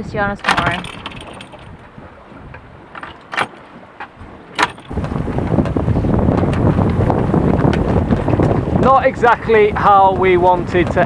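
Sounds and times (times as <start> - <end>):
wind buffeting microphone: 0.0 - 11.0
sharp clicks and knocks: 0.4 - 5.8.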